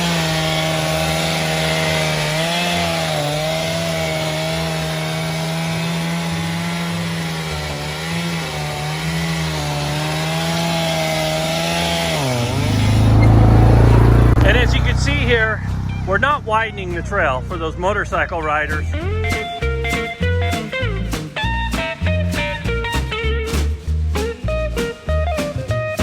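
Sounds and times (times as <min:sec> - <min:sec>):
chainsaw cutting through log: 0:00.0 - 0:16.0.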